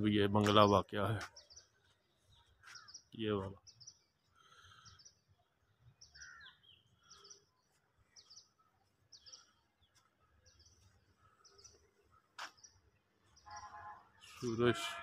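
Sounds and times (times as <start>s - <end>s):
bird chirping: 0.4s - 15.0s.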